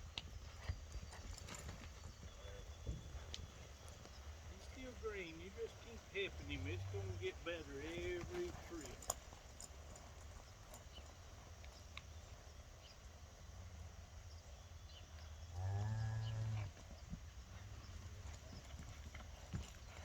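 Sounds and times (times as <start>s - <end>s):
cow mooing: 4.6s - 8.9s, 15.6s - 16.7s.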